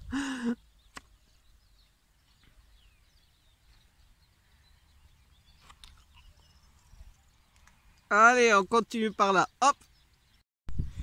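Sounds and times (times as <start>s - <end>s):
faint bird chirps: 0.1s - 8.2s.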